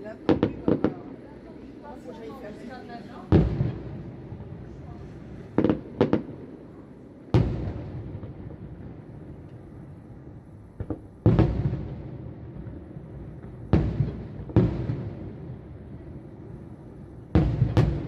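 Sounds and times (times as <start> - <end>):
firework crack: 0.0 - 1.4, 3.3 - 18.0
distant firework booms: 17.3 - 18.0.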